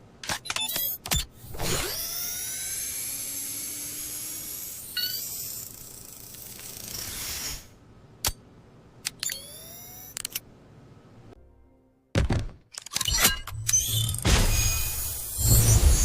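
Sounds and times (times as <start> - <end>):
sharp mechanical click: 0.2 - 1.3, 9.0 - 10.5
motor whirring and hissing: 0.8 - 7.8, 14.6 - 16.0.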